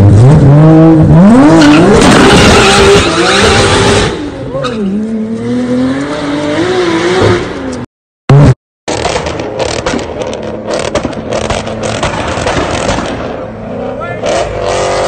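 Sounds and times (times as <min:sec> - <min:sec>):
car engine revving: 0:00.0 - 0:15.0
engine rumble with crackles: 0:08.9 - 0:14.1.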